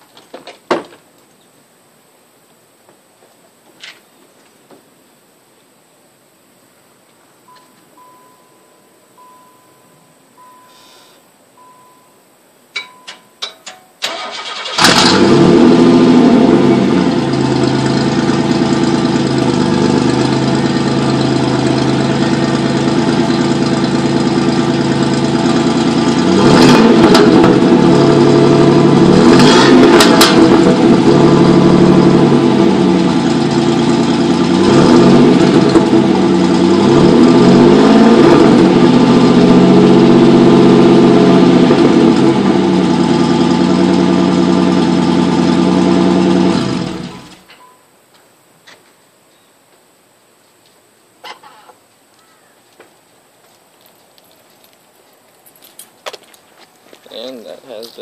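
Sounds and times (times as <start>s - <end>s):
car engine cranking and starting: 14.0s - 47.6s
engine revving: 14.1s - 47.4s
car engine idling: 14.1s - 47.5s.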